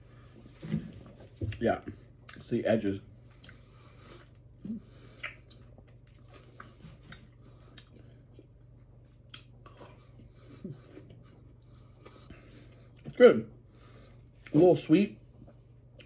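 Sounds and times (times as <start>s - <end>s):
person chewing pineapple: 3.3s - 13.2s.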